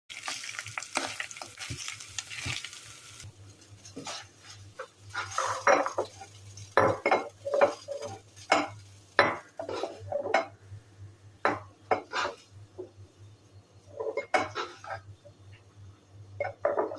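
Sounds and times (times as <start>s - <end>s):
sizzling hiss: 0.1s - 10.1s
utensils clinking against pots: 3.5s - 10.6s, 13.9s - 15.1s, 16.4s - 16.9s.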